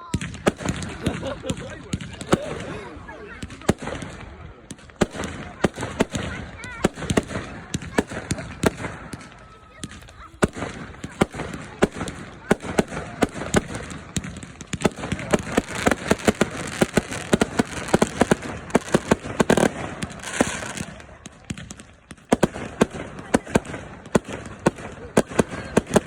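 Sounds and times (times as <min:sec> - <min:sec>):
fireworks bangs and cracks: 0:00.0 - 0:26.0.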